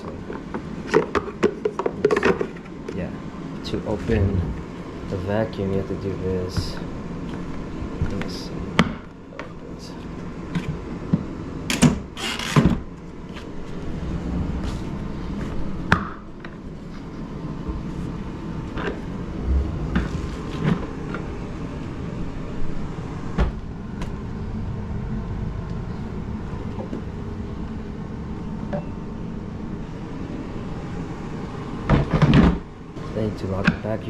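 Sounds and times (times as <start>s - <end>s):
steady low rumble: 3.2s - 11.7s, 13.1s - 31.6s.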